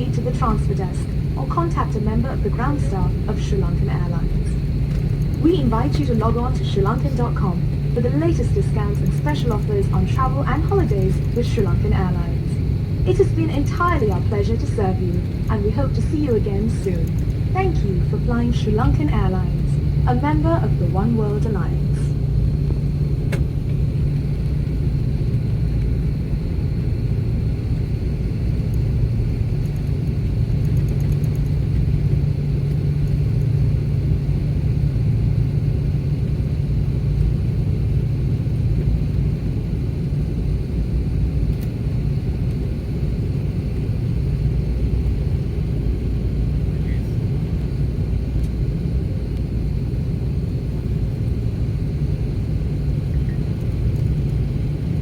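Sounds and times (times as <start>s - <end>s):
faint high whine: 0.0s - 27.6s
airplane cabin rumble: 0.0s - 55.0s.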